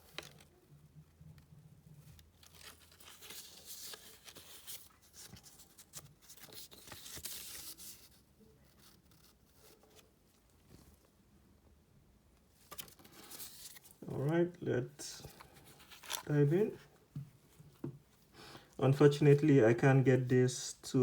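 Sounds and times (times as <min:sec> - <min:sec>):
packaging rustling and crinkling: 0:15.2 - 0:16.4.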